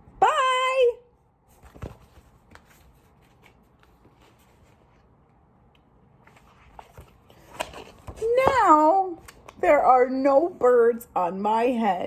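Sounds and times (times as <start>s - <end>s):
book pages rustling: 1.4s - 5.4s, 6.1s - 9.6s.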